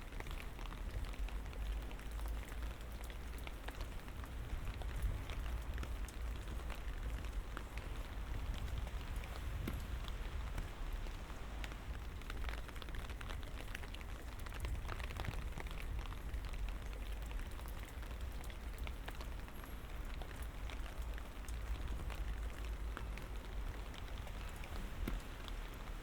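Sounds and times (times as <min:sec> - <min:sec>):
light rain pattering: 0:00.0 - 0:26.0.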